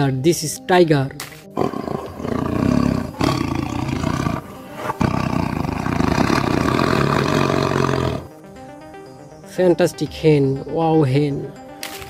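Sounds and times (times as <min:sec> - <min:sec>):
tiger roaring: 0:01.6 - 0:08.3.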